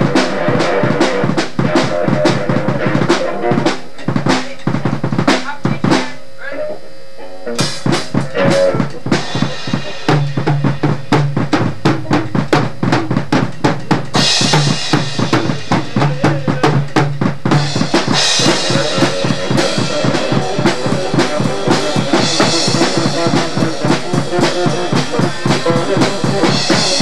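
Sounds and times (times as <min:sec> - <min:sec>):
fast drum hits: 0:00.0 - 0:06.2, 0:07.6 - 0:27.0
held low instrument notes: 0:06.2 - 0:27.0.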